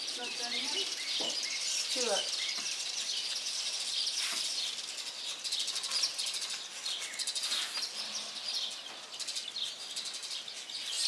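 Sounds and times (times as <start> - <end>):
birds chattering: 0.0 - 4.3.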